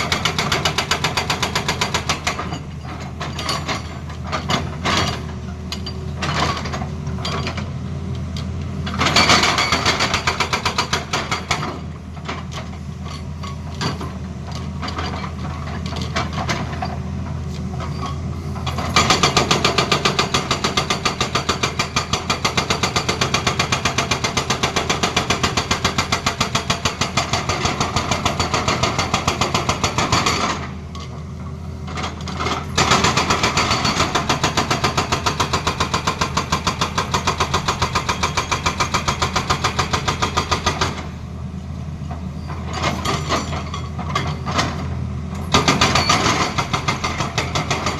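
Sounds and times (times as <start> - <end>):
excavator engine running: 0.0 - 47.9
hydraulic breaker hammering: 32.8 - 41.2, 45.5 - 47.9.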